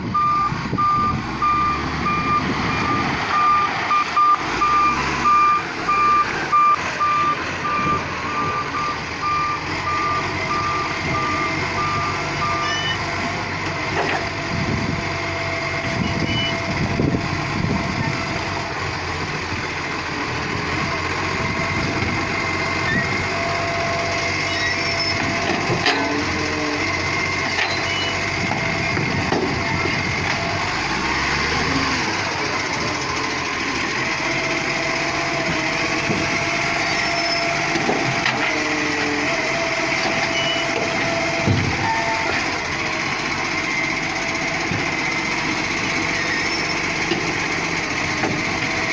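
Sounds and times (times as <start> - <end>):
truck engine running: 0.0 - 48.9
reversing alarm beeping: 0.1 - 13.6, 15.8 - 16.8, 20.6 - 29.0, 39.8 - 42.7, 43.4 - 47.0.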